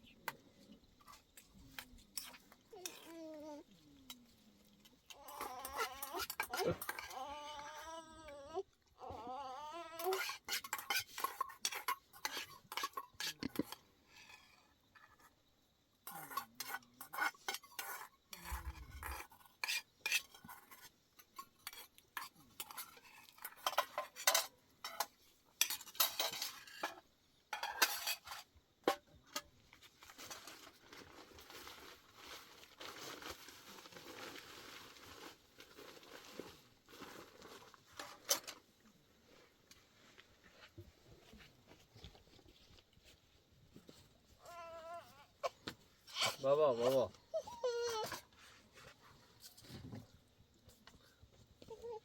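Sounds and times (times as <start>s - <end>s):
dishes and utensils clinking: 10.0s - 13.8s, 16.0s - 29.4s.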